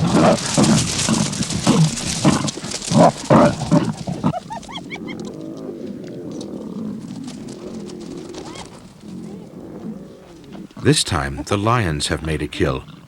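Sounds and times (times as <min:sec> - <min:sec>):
rising and falling animal calls: 0:00.0 - 0:10.9
hyenas crying: 0:00.0 - 0:13.0
low growling: 0:00.0 - 0:13.0.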